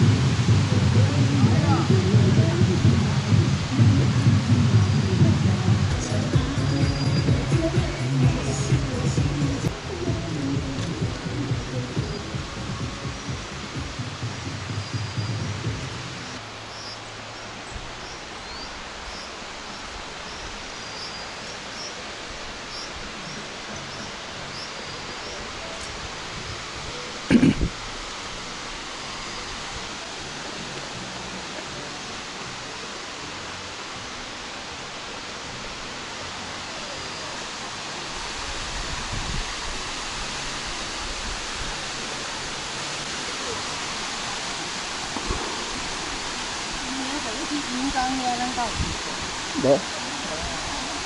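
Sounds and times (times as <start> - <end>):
waterfall rushing: 0.0 - 51.0
small birds chirping: 11.8 - 25.9.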